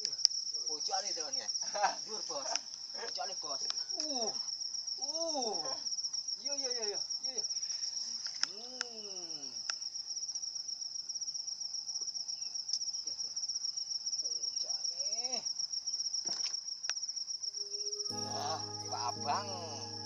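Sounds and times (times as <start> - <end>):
insects chirring trill: 0.0 - 20.0.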